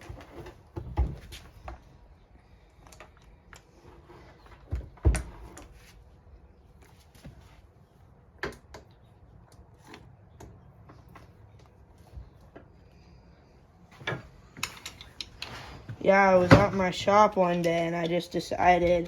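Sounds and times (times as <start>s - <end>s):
hand tools clicking on metal: 17.4s - 18.3s.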